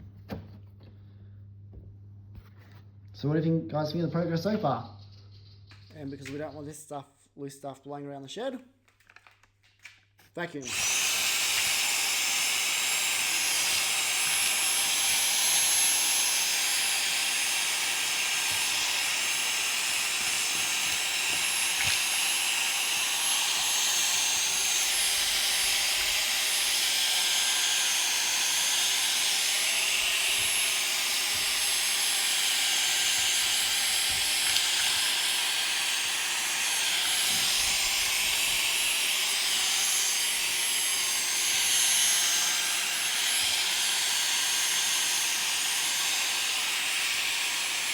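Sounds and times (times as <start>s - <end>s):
vacuum cleaner running: 10.6s - 47.9s.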